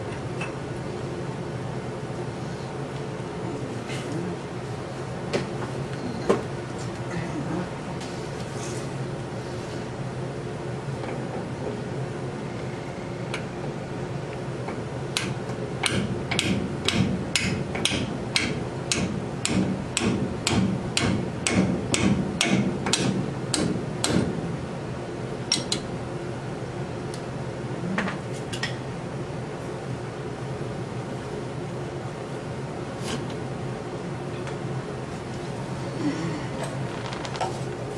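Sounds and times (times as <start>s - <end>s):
steady background hum: 0.0s - 37.9s.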